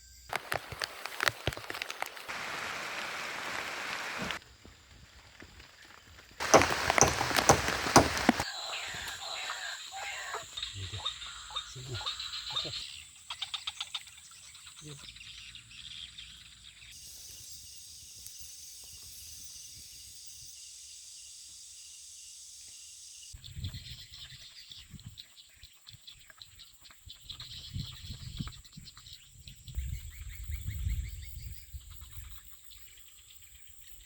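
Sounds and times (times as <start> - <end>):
insect drone: 0.0 - 23.4
rustling and clicks: 0.3 - 2.4, 6.4 - 8.4.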